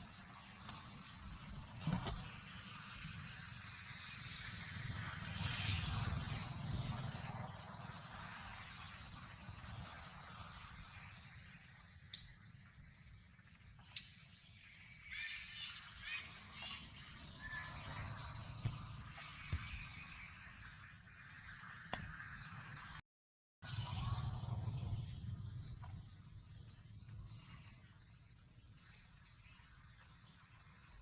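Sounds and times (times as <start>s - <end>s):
insect drone: 0.0s - 23.0s, 23.6s - 31.0s
faint chirping calls: 10.9s - 22.8s.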